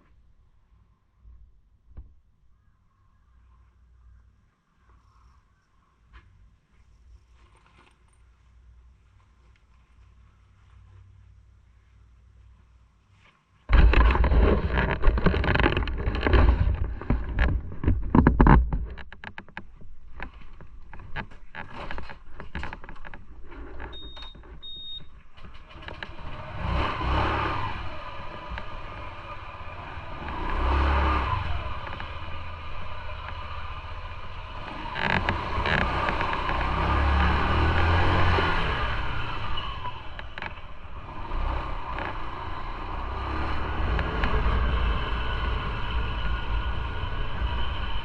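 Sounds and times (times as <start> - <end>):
motorcycle engine accelerating: 13.7 - 19.1, 25.4 - 48.0
knocking and clicking: 13.7 - 26.1.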